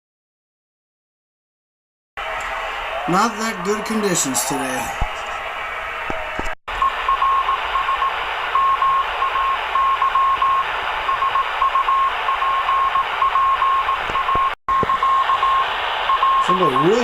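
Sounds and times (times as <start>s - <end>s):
morse code beeps: 6.8s - 17.0s
radio band noise hiss: 14.0s - 17.0s.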